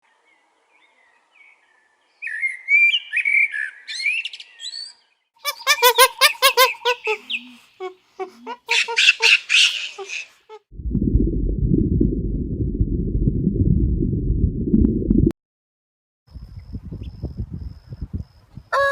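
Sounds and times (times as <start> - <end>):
birds chirping and squawking: 2.3 - 7.7, 8.5 - 10.5
low rumbling noise: 10.7 - 15.3.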